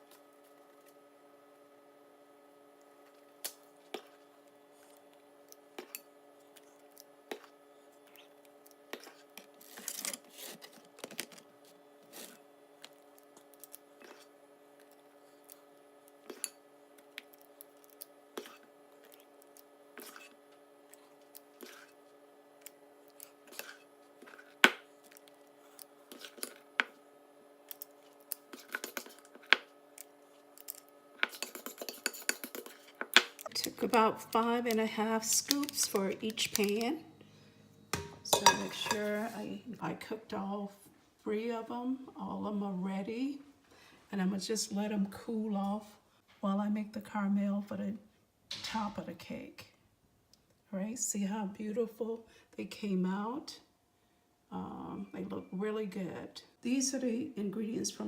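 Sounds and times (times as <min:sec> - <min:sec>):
faint steady hum: 0:00.0 - 0:58.0
metal scoop clicking and scraping: 0:30.6 - 0:33.7.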